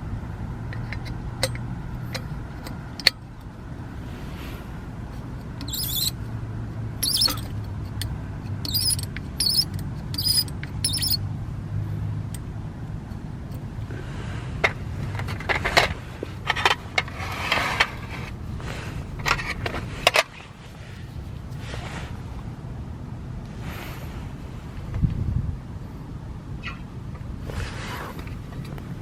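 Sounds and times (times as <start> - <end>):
steady low hum: 0.0 - 29.0
small metal parts clinking: 7.0 - 11.2.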